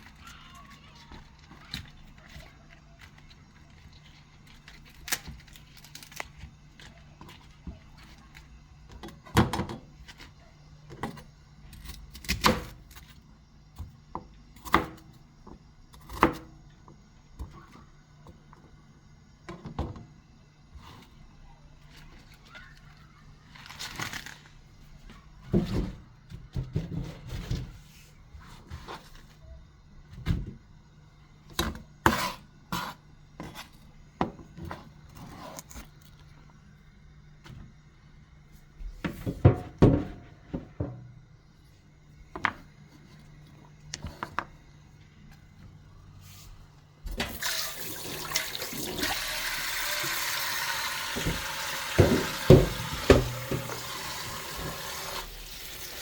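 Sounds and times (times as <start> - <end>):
kitchen knocks and clicks: 39.0 - 41.1, 51.1 - 53.9
tap water running: 47.0 - 56.0.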